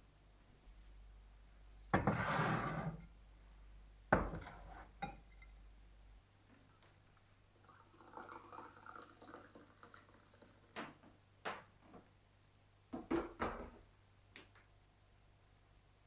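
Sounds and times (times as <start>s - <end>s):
dishes knocking and clattering: 4.1s - 5.5s
liquid trickling: 7.6s - 10.8s.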